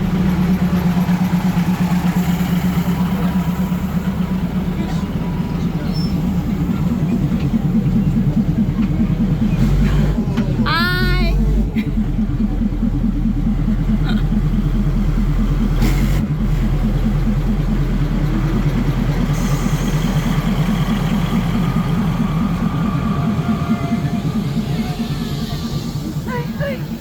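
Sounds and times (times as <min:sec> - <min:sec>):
diesel railcar engine throbbing: 0:00.0 - 0:27.0.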